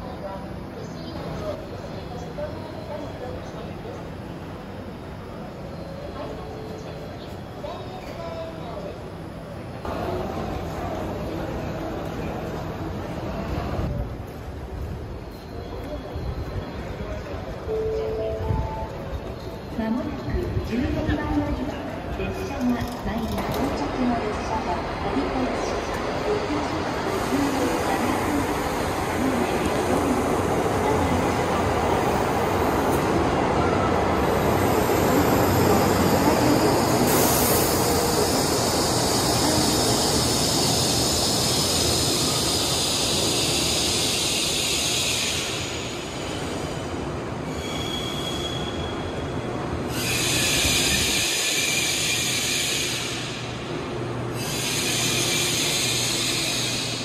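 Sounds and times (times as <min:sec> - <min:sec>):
train rumbling to a stop: 0:00.0 - 0:57.0
train brakes squealing: 0:15.2 - 0:20.5, 0:25.7 - 0:57.0.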